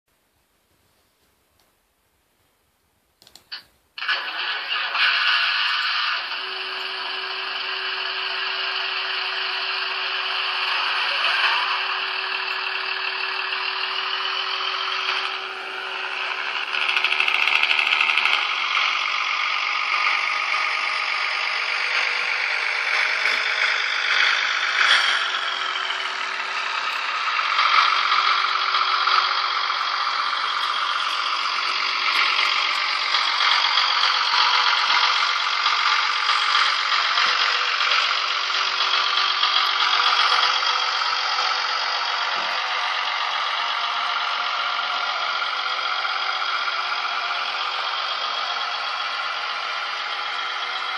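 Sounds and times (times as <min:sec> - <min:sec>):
diesel engine sound from tiny loudspeaker: 0:04.0 - 0:50.9.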